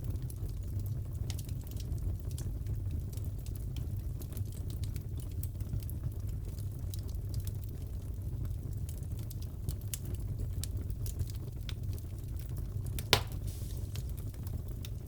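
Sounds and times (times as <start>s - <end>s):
wood fire crackling: 0.1s - 15.0s
loud pop from fire: 13.0s - 14.3s.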